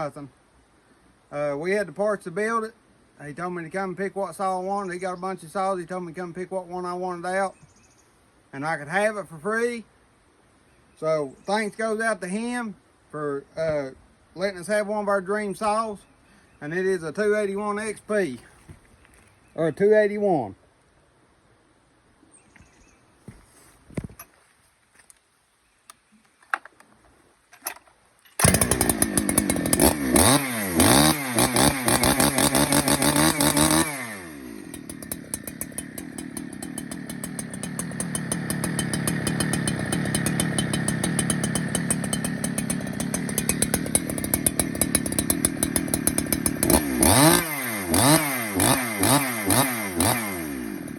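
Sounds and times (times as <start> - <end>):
chainsaw revving: 28.4 - 50.9.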